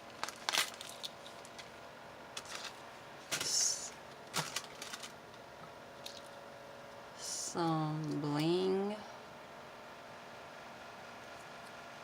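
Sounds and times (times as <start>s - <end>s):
packaging rustle: 0.0s - 5.2s.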